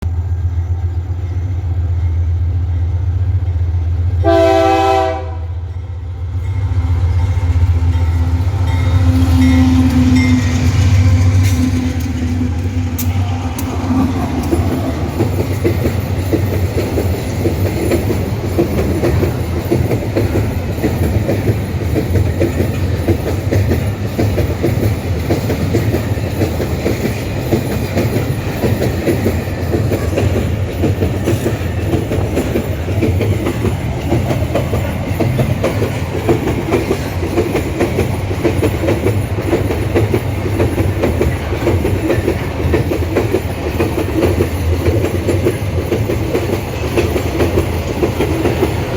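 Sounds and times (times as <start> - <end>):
freight train wheels clattering: 6.3 - 48.9.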